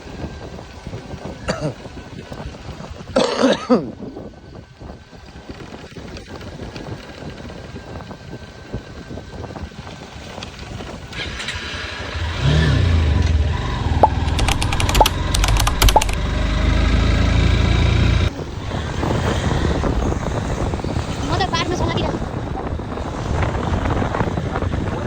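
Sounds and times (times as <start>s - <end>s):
motorcycle engine rumbling: 10.6s - 25.0s
sharp clicks: 14.0s - 16.2s.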